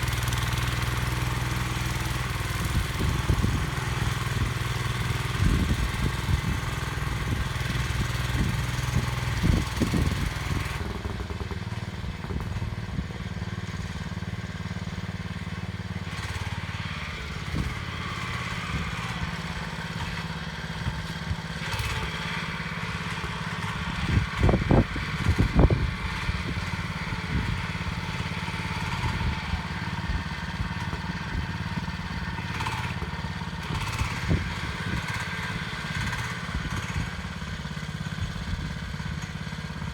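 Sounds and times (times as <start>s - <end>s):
tractor engine running: 0.0s - 39.9s
knocks and clatters: 10.8s - 13.0s.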